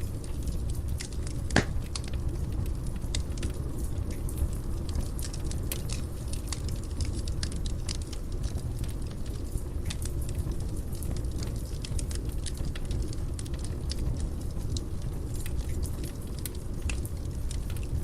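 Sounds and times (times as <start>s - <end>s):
fire crackling: 0.0s - 18.0s
fire flames rumbling: 0.0s - 18.0s
loud fire pop: 1.6s - 1.8s.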